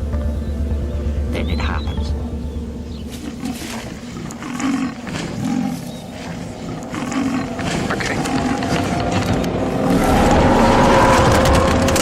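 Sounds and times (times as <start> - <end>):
large animal growling and roaring: 3.0 - 12.0.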